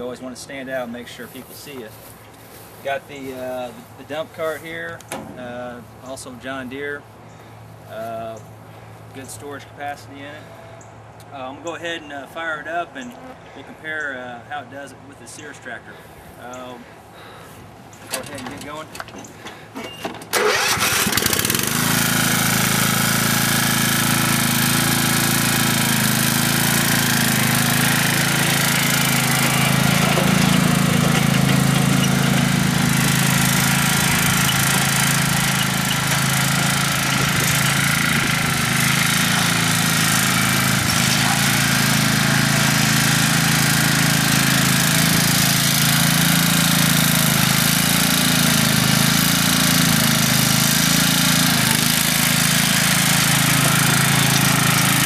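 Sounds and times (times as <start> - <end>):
lawn tractor engine running: 17.2 - 55.0.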